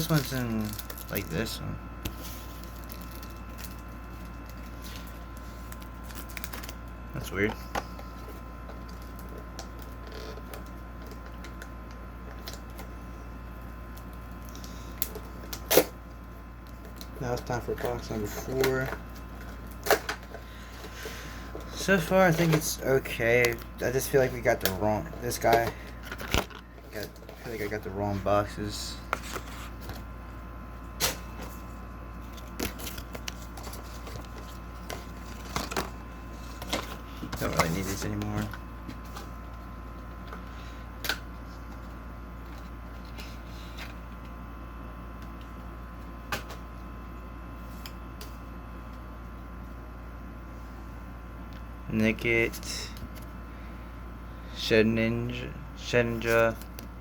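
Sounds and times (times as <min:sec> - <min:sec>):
cards and packaging clicking: 0:00.0 - 0:06.8
steady low hum: 0:00.0 - 0:57.0.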